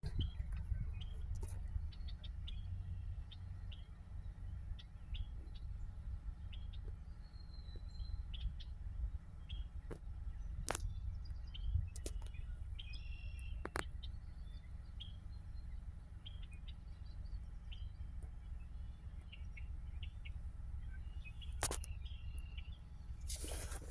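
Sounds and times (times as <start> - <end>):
small birds chirping: 0.0 - 23.9
steady low rumble: 0.0 - 23.9
sharp clicks: 21.5 - 22.0.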